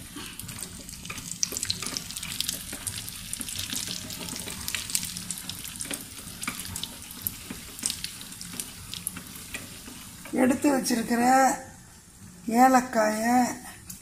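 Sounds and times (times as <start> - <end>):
nuts sizzling in a pan: 0.0 - 12.6
spoon stirring: 0.6 - 10.4.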